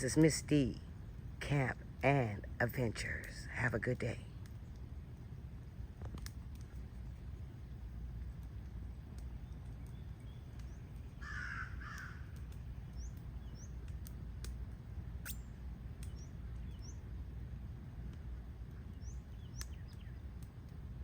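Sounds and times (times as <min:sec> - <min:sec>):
low outdoor rumble: 0:00.0 - 0:21.0
crow cawing: 0:11.2 - 0:12.4
sharp clicks: 0:19.5 - 0:20.8.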